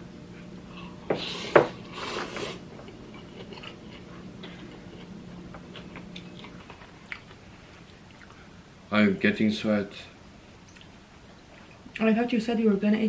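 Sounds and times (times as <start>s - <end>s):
low steady hum: 0.0s - 13.0s
noisy slurp: 0.7s - 7.3s
chewing: 0.7s - 8.4s.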